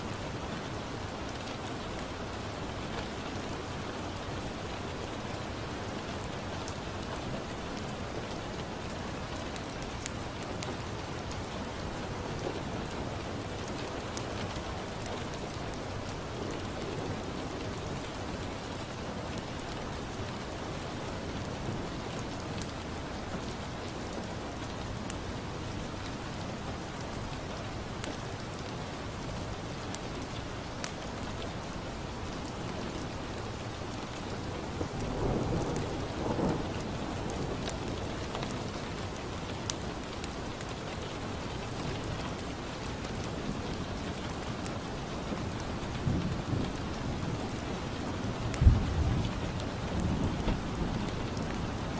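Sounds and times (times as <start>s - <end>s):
steady rain: 0.0s - 51.9s
low rumble of thunder: 34.7s - 39.2s, 45.8s - 51.9s.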